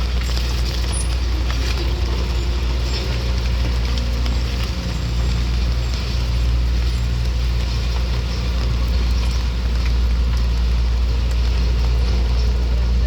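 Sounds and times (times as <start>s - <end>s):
heavy vehicle engine rumbling: 0.0s - 13.0s.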